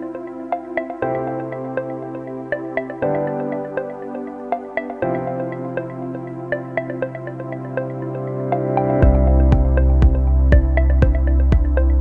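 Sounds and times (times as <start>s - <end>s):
soft music with pads: 0.0s - 12.0s
bass and beat: 9.0s - 12.0s.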